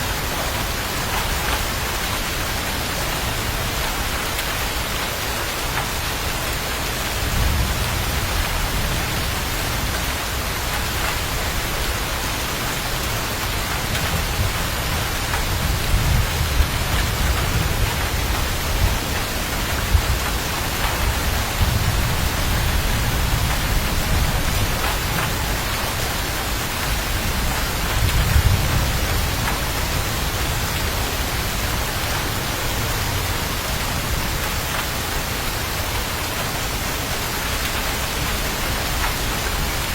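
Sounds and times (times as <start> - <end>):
heavy rain falling: 0.0 - 39.9
distant thunder rumbling: 6.9 - 11.9, 13.1 - 34.7.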